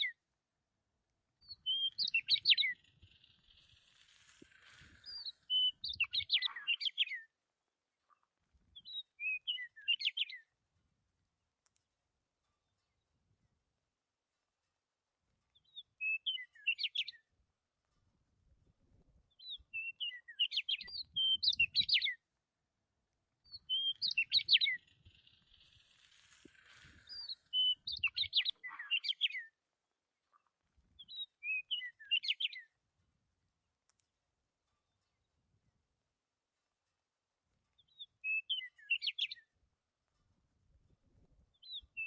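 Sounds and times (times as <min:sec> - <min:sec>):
small bird chirping: 0:01.4 - 0:07.3, 0:08.7 - 0:10.4, 0:15.5 - 0:17.3, 0:19.3 - 0:22.2, 0:23.4 - 0:29.6, 0:30.3 - 0:32.7, 0:37.7 - 0:39.6, 0:41.5 - 0:42.0.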